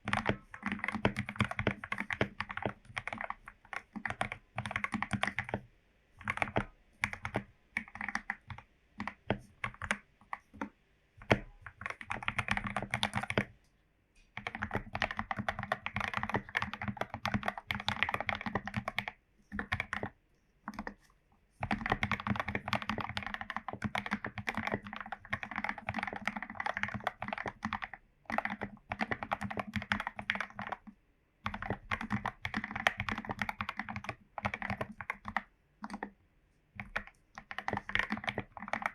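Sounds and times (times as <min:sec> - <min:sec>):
mechanical keyboard typing: 0:00.0 - 0:05.6, 0:06.2 - 0:13.5, 0:14.4 - 0:21.0, 0:21.6 - 0:36.2, 0:36.8 - 0:38.9.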